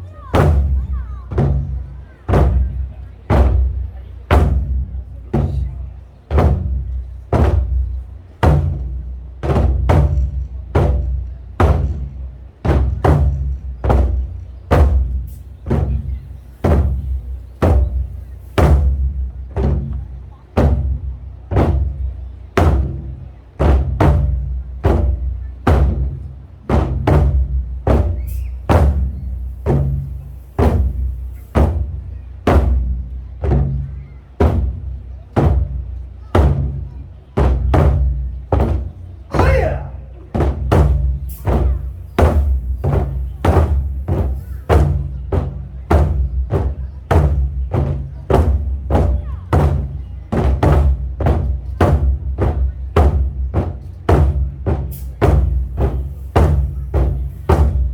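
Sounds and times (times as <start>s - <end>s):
drums struck in driving rhythm: 0.0s - 57.9s.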